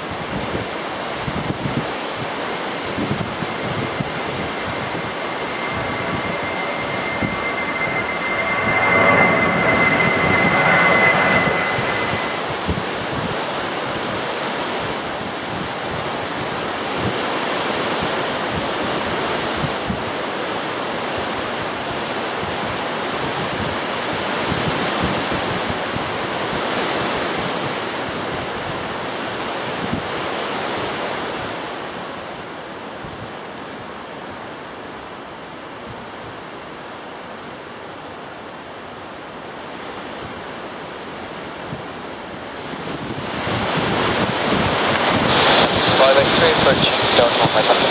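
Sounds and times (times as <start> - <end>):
gusty wind buffeting microphone: 1.3 - 13.4, 42.5 - 47.9.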